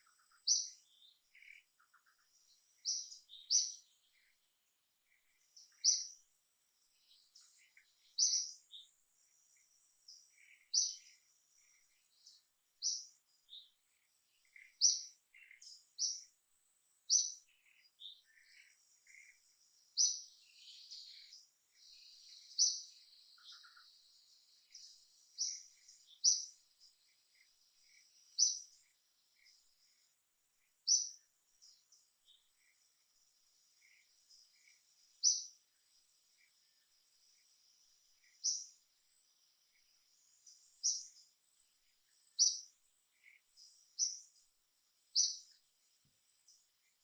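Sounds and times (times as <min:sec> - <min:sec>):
faint high insect whine: 0:00.0 - 0:47.0
sharp high-pitched bird chirps: 0:34.6 - 0:35.6.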